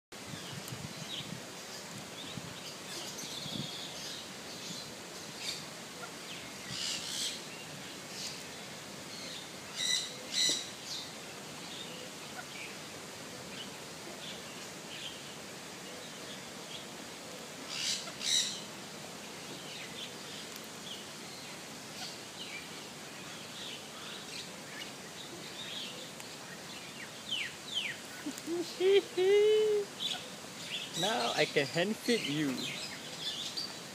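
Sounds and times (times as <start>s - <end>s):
birds chirping: 17.7s - 33.9s.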